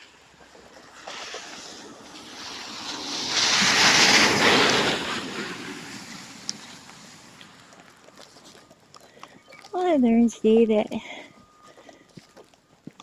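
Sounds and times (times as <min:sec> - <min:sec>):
vehicle passing by: 0:00.8 - 0:08.1.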